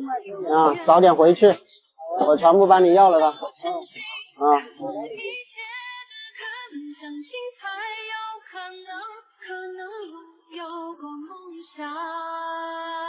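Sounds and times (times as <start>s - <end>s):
woman singing slow melody: 3.5s - 13.0s.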